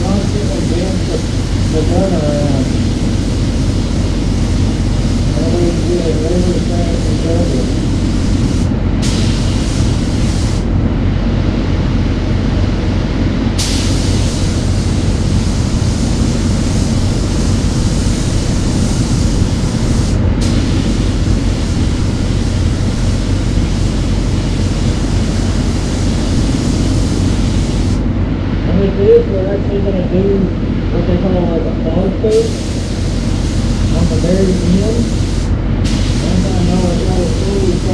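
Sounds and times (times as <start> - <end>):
spray gun hissing: 0.0 - 10.7, 13.6 - 28.0, 32.3 - 37.9
steady low hum: 0.0 - 37.9.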